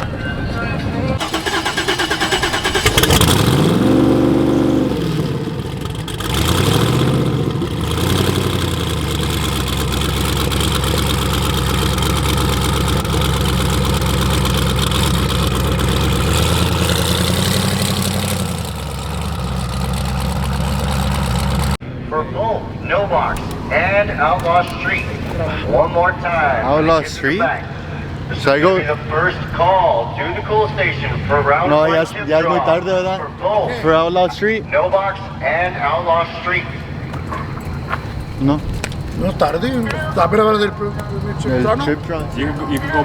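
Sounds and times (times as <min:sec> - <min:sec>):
car engine idling: 0:00.0 - 0:21.8, 0:22.7 - 0:31.3, 0:36.5 - 0:43.0
car engine revving: 0:01.2 - 0:21.8, 0:23.1 - 0:26.7, 0:36.9 - 0:43.0.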